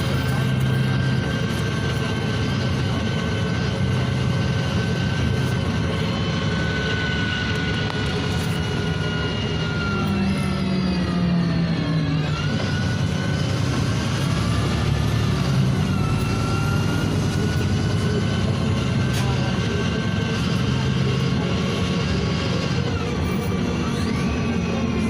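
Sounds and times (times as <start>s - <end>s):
bus diesel engine running: 0.0s - 25.0s.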